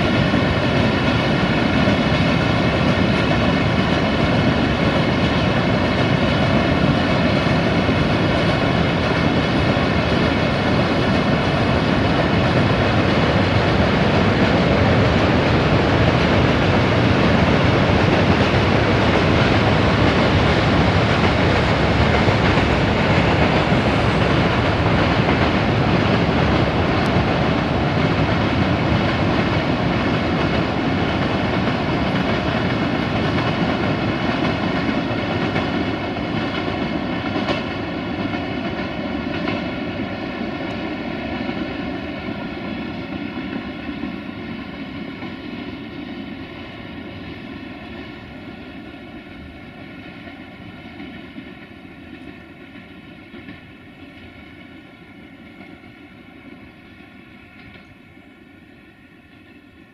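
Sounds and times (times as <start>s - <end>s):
rumble of freight wagons: 0.0s - 45.4s
diesel locomotive engine drone: 0.0s - 59.9s.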